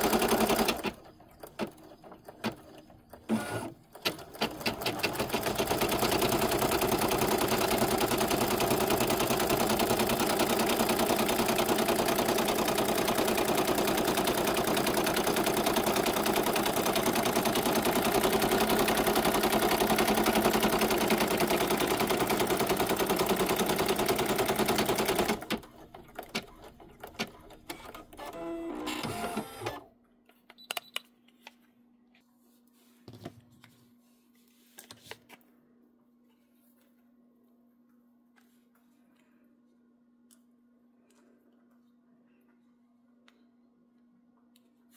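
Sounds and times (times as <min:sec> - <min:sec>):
embroidery machine stitching: 0:00.0 - 0:29.8.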